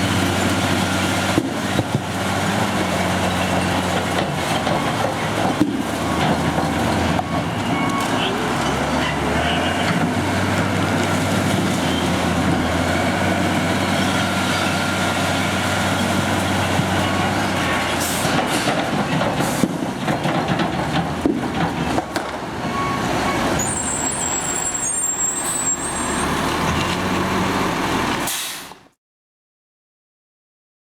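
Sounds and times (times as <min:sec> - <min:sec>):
knocks and clatter: 0:18.2 - 0:22.5
high squeal: 0:23.5 - 0:26.4.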